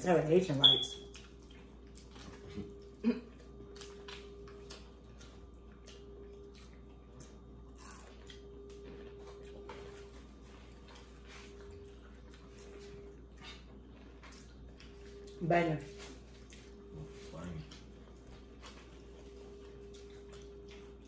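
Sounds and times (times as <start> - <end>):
faint steady hum: 0.0 - 21.0
chewing crispy food: 0.2 - 21.0.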